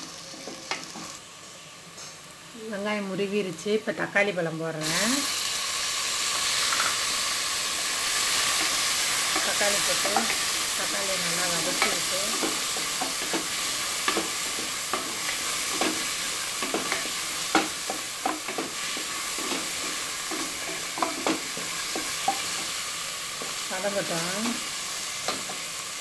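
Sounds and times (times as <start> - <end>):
onions and tomatoes sizzling in oil: 0.0 - 26.0.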